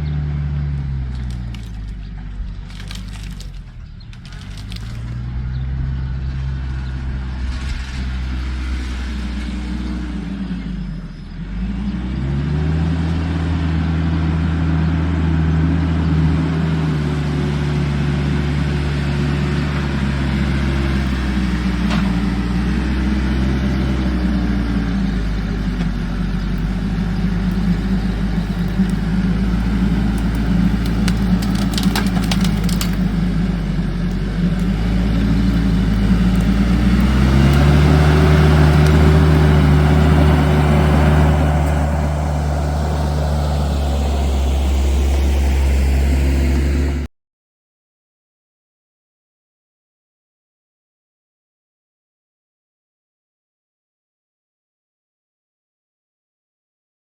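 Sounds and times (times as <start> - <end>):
large engine running: 0.0 - 47.1
sharp clicks: 26.6 - 33.2.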